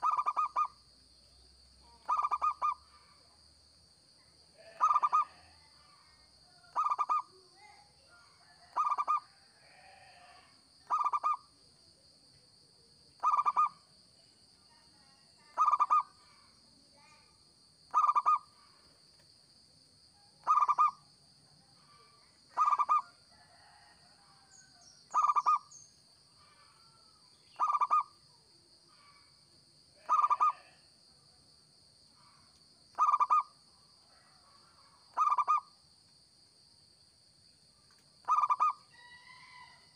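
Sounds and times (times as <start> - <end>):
dove cooing: 0.0 - 0.7, 2.0 - 2.8, 4.6 - 5.6, 6.7 - 7.3, 8.7 - 9.3, 10.9 - 11.4, 13.2 - 13.8, 15.6 - 16.1, 17.9 - 18.4, 20.4 - 21.0, 22.6 - 23.0, 25.2 - 25.6, 27.6 - 28.1, 30.0 - 30.7, 33.0 - 33.5, 35.2 - 35.6, 38.2 - 38.8.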